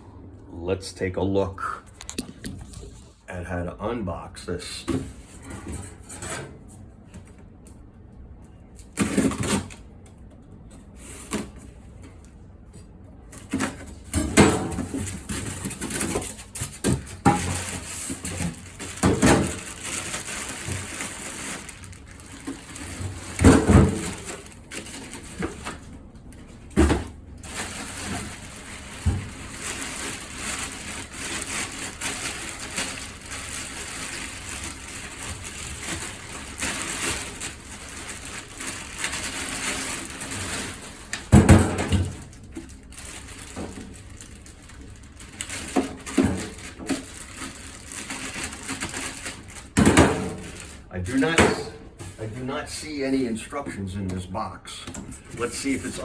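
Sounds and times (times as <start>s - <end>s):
cardboard and packing rustling: 8.8s - 12.3s, 13.3s - 52.4s.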